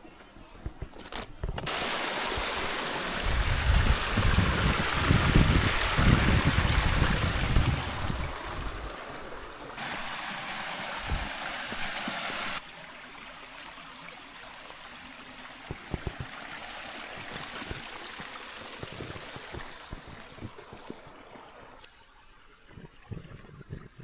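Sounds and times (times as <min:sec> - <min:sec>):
stream water rushing: 0:01.6 - 0:24.0.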